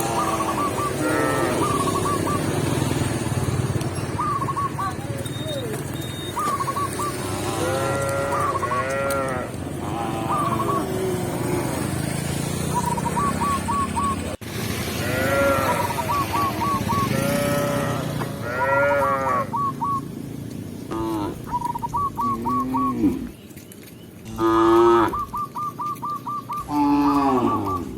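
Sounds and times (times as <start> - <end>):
cows mooing: 0.0 - 2.1, 7.0 - 12.5, 15.0 - 19.6, 20.9 - 21.5, 22.2 - 23.3, 24.2 - 25.3, 26.6 - 27.9
bird chirping: 0.0 - 3.0, 3.7 - 7.4, 12.6 - 14.4, 21.4 - 24.3, 25.0 - 27.9.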